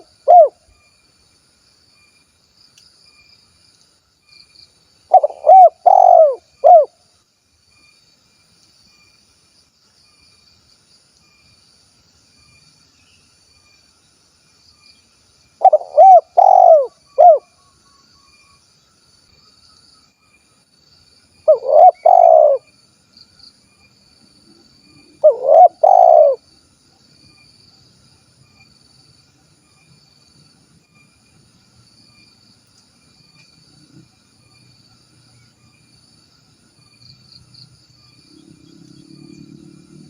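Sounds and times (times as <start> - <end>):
dove cooing: 0.0 - 0.6, 5.1 - 6.9, 15.6 - 17.4, 21.5 - 22.7, 25.2 - 26.4
faint insect buzz: 0.0 - 40.0.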